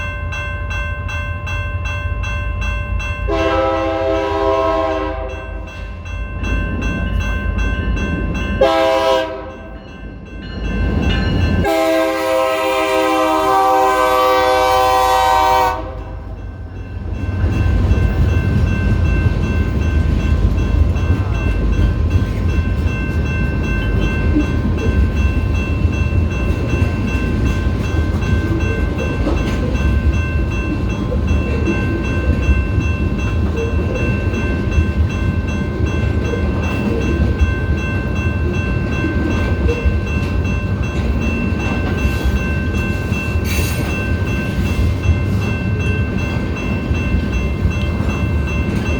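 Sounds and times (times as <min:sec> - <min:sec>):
train cars rolling past: 0:00.0 - 0:48.9
train horn: 0:03.3 - 0:05.4, 0:08.6 - 0:09.6, 0:11.6 - 0:16.2.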